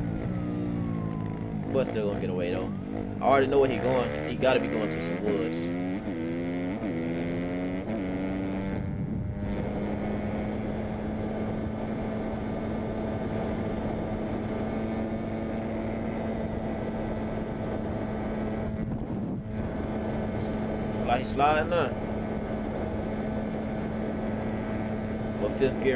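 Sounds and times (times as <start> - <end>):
dirt bike engine revving: 1.6 - 12.5, 19.6 - 25.9.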